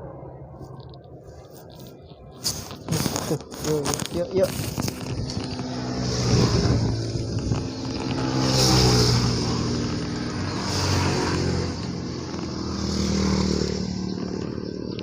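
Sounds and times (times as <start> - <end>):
vehicles passing on road: 0.0 - 15.0.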